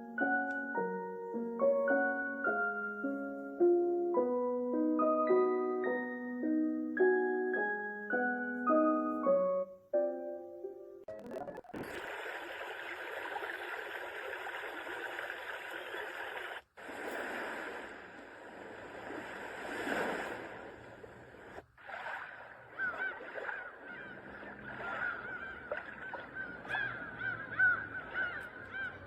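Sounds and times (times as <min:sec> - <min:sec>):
surf-like rushing: 0:13.9 - 0:26.1.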